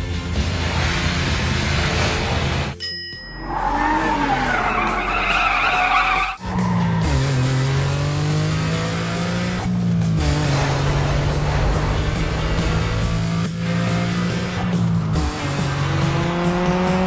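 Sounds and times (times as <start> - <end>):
engine drone rising in pitch: 0.0 - 17.0
short ringing ping: 2.8 - 3.5
wavering tyre screech: 3.4 - 8.1.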